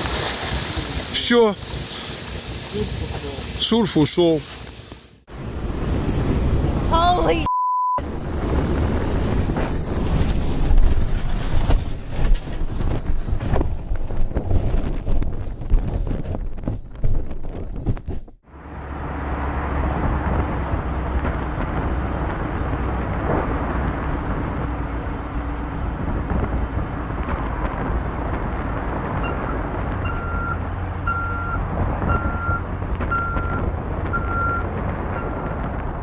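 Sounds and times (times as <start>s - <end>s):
vehicle engine humming: 18.4s - 36.0s
reversing alarm beeping: 29.2s - 35.6s.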